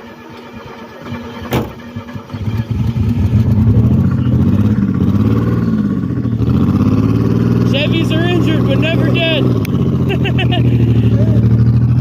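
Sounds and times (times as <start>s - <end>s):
engine pop: 0.4s - 3.0s
car engine revving roughly: 1.0s - 12.0s.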